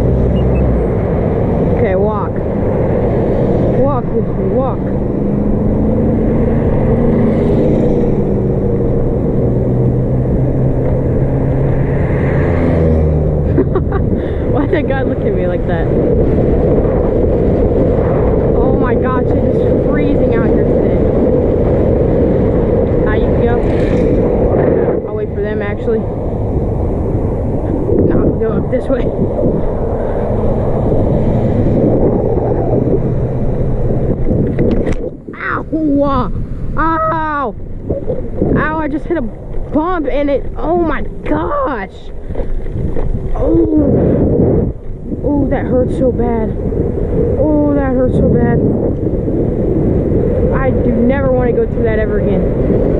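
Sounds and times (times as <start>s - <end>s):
bike road noise: 0.0s - 52.9s
car engines passing by: 0.0s - 52.9s
wind rushing over microphone: 0.0s - 52.9s.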